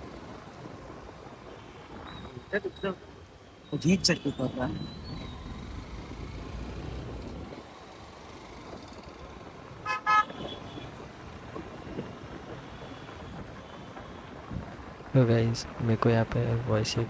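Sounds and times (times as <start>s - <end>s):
motorcycle engine rumble: 3.8s - 16.9s
vehicle horn beeps: 9.8s - 10.9s.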